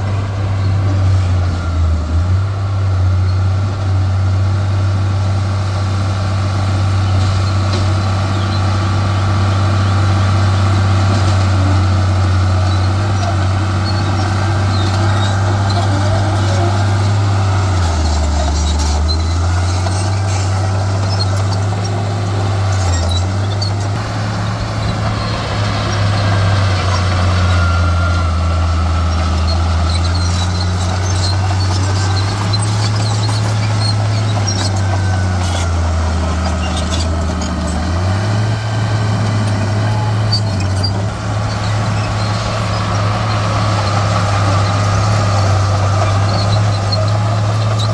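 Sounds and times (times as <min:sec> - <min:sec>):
diesel machinery engine: 0:00.0 - 0:47.9
brief squeal: 0:39.4 - 0:42.4.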